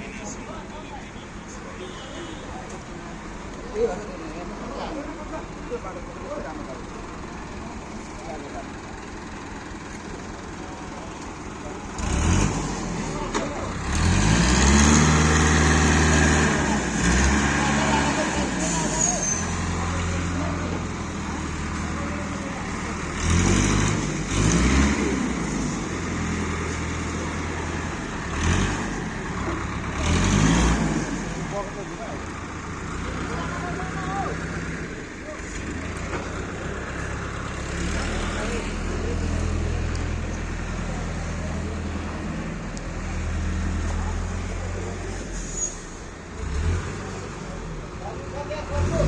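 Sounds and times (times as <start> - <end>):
heavy diesel engine revving: 6.6 - 49.0
high-pitched squeak: 18.6 - 19.6, 45.3 - 46.0.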